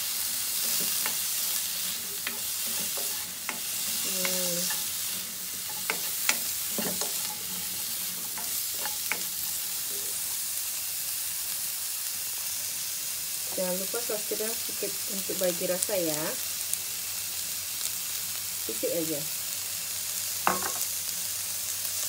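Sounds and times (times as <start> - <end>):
spatula scraping a wok: 0.0 - 10.4
vegetables sizzling in hot oil: 0.0 - 22.0.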